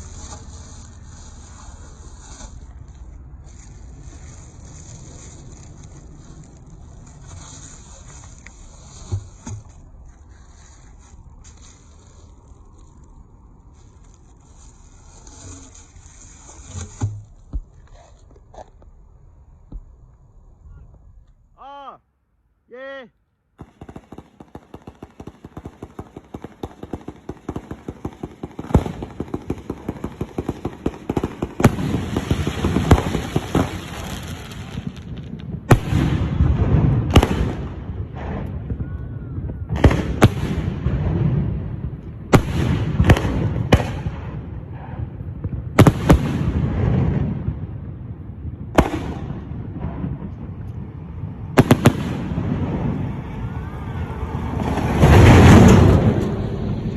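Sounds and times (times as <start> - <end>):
fireworks crackling: 0.0 - 17.8, 23.6 - 56.9
rumble: 0.0 - 21.6, 23.5 - 56.9
loud firework bangs: 23.6 - 56.9.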